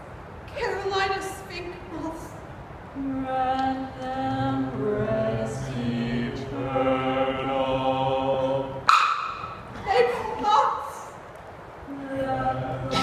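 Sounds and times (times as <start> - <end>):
voices singing chant-like chord: 3.0 - 10.4, 11.9 - 13.0.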